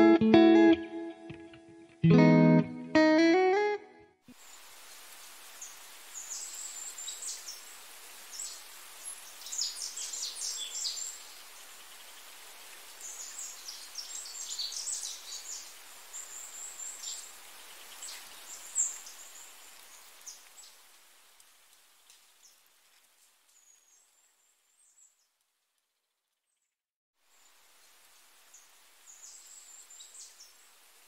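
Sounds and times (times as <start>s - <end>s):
faint steady hiss: 4.3s - 26.0s, 27.2s - 31.0s
small birds twittering: 5.6s - 12.4s, 13.0s - 20.8s.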